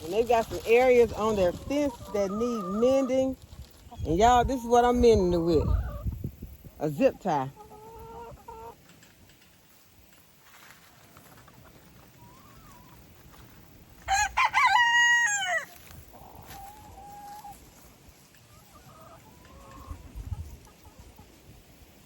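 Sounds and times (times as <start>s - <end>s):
chickens clucking: 0.0s - 22.0s
rooster crowing: 14.1s - 15.7s.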